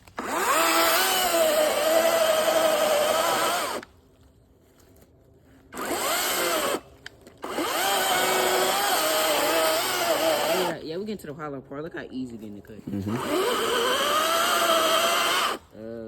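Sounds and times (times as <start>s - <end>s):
electric chainsaw cutting wood: 0.0s - 3.9s, 5.8s - 6.8s, 7.4s - 10.8s, 12.9s - 15.7s.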